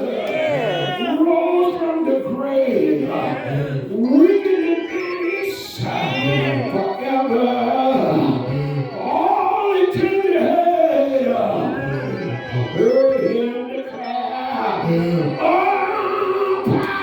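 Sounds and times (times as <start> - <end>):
church instrumental accompaniment: 0.0 - 17.0
man singing: 0.7 - 17.0.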